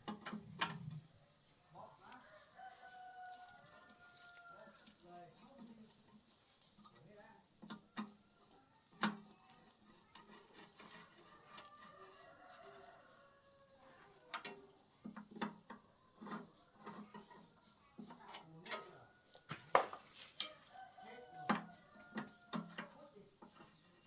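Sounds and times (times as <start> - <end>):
metal tools clinking: 20.1 - 20.7.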